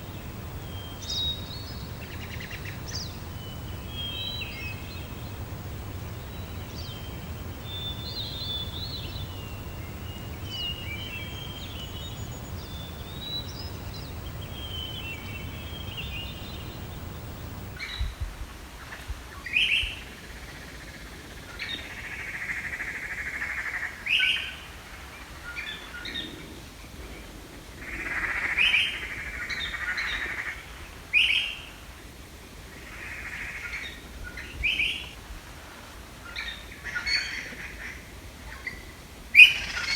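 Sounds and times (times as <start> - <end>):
harsh buzzy bird calls: 0.0 - 17.8
low background rumble: 0.0 - 17.8
small birds chirping: 0.0 - 17.8.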